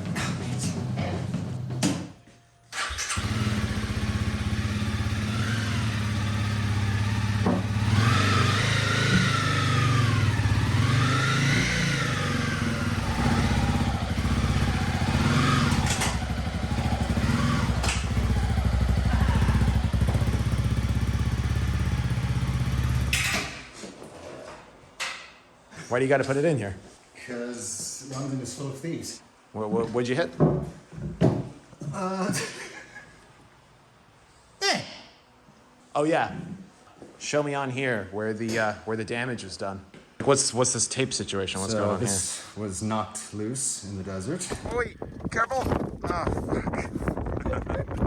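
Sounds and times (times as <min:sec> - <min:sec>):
motorcycle engine revving: 0:00.0 - 0:01.8, 0:02.8 - 0:23.6.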